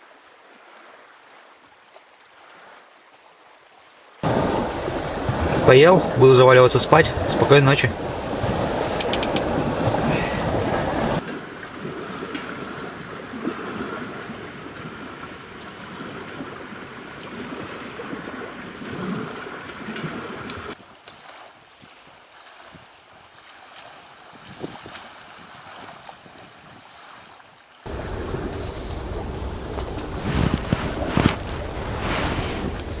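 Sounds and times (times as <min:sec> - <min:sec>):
rushing wind noise: 0:06.8 - 0:20.8, 0:27.9 - 0:33.0
faint crackles: 0:11.1 - 0:20.8, 0:27.9 - 0:33.0.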